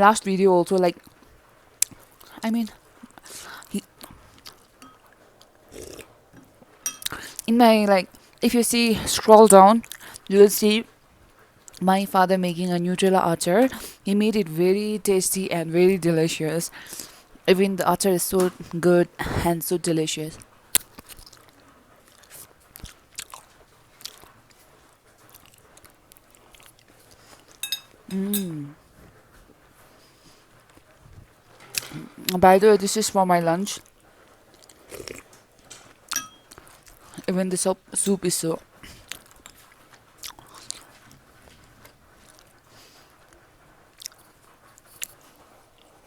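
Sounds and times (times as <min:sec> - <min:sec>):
person chewing wetly: 0:04.0 - 0:07.5, 0:20.8 - 0:24.6, 0:25.2 - 0:28.0, 0:33.9 - 0:37.3, 0:38.7 - 0:42.6, 0:43.2 - 0:45.9.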